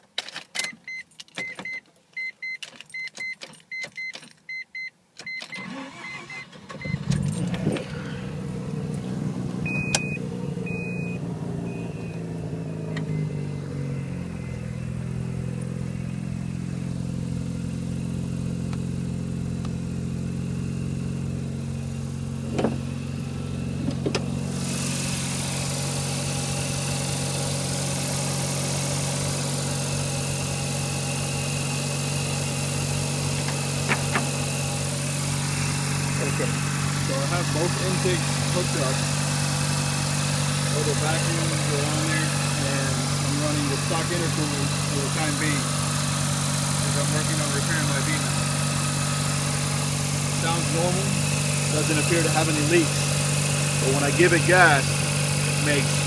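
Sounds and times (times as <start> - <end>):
short beeps: 0.9 - 7.2, 9.6 - 12.3, 12.9 - 15.0
car engine starting and idling: 5.2 - 56.0
warning chime beeping: 9.6 - 15.5.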